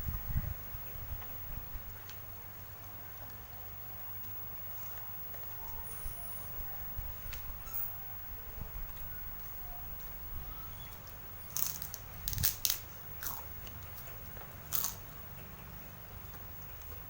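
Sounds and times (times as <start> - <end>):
crunchy food being chewed: 10.9 - 15.1.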